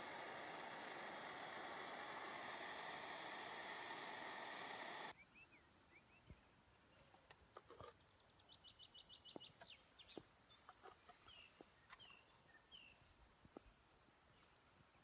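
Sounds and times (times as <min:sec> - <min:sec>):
small bird chirping: 0:08.0 - 0:13.0.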